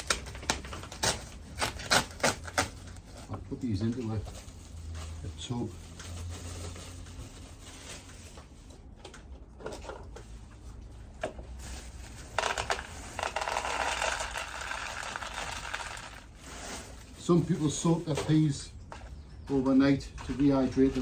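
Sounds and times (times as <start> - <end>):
dried peas pouring into a tub: 12.4 - 17.5.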